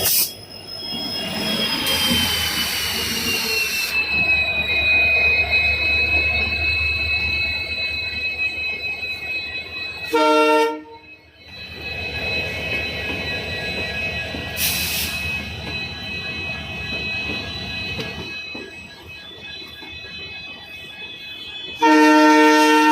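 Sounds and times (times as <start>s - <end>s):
high-pitched whine: 0.0s - 21.7s
train rumbling: 0.0s - 22.9s
train horn blast: 10.1s - 11.0s, 21.8s - 22.9s.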